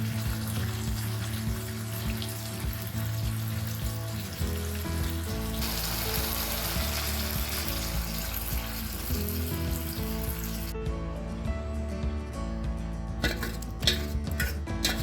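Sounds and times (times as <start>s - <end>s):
food sizzling: 0.0s - 10.8s
background music: 0.0s - 15.0s.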